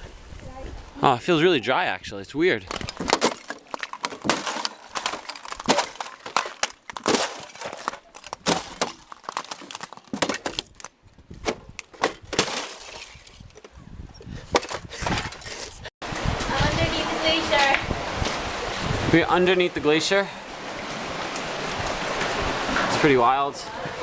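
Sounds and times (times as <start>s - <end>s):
ice crunching and cracking: 2.6s - 11.0s, 11.7s - 13.7s.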